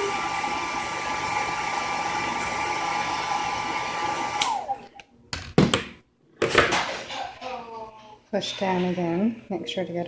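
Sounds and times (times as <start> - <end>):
hair dryer blowing: 0.0 - 4.8.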